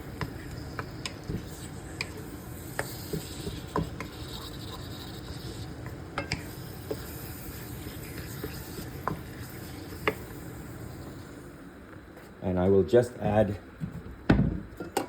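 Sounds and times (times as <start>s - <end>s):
utensil stirring and scraping pan: 0.0s - 11.1s
steady hiss: 0.0s - 14.1s.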